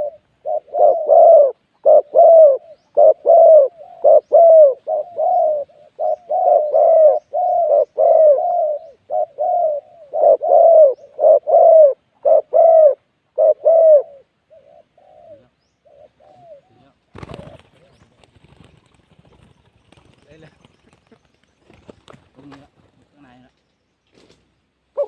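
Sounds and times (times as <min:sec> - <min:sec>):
dove cooing: 0:00.0 - 0:18.8.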